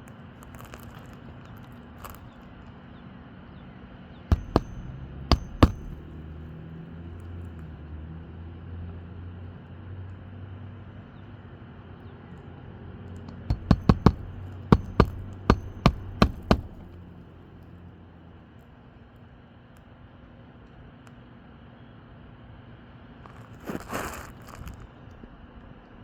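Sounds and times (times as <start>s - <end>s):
hammer nailing shingle: 4.3s - 6.4s, 13.3s - 17.2s.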